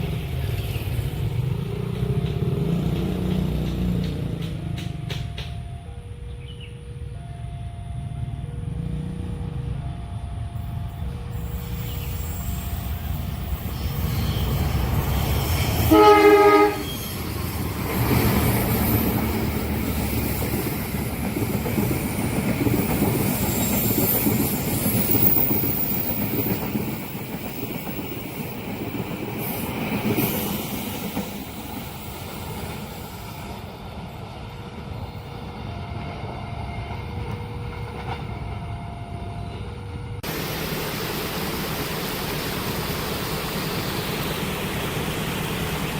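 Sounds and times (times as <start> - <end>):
train wheel clatter: 0.0 - 5.8, 11.7 - 33.7
high squeal of train wheels: 9.6 - 40.2
train horn blast: 15.5 - 17.2.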